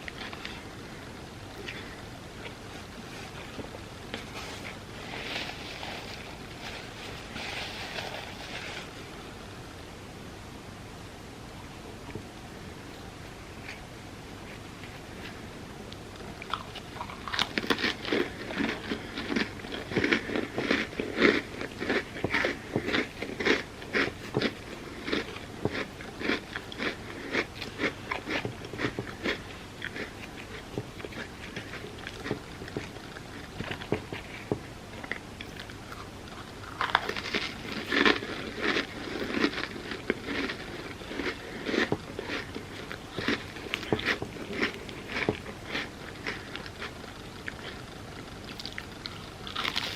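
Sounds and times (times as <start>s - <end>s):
person crunching crunchy food: 16.2s - 49.9s.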